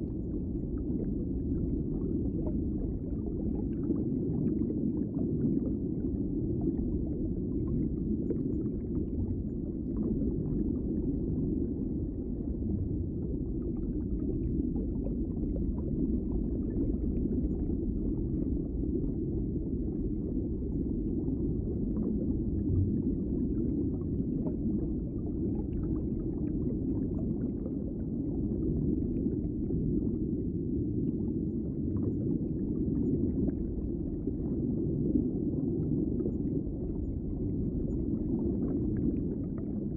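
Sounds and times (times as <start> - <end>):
underwater rumble of moving water: 0.0 - 39.9
faint crackles and clicks: 30.8 - 39.9.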